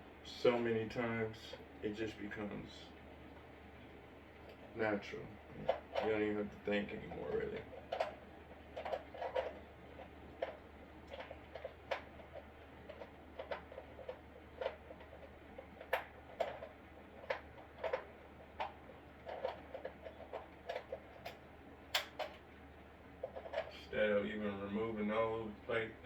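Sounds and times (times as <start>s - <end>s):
clicks of small parts and tools: 19.3s - 22.4s.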